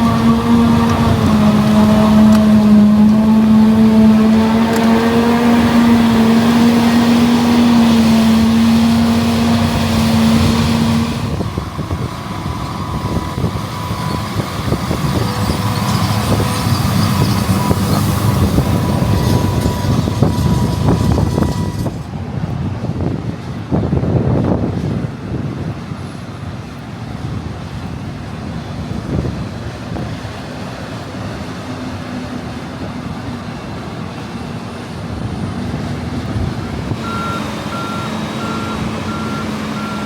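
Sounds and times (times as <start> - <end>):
farm machinery engine drone: 0.0 - 40.0
rough noisy machine sound: 0.0 - 40.0.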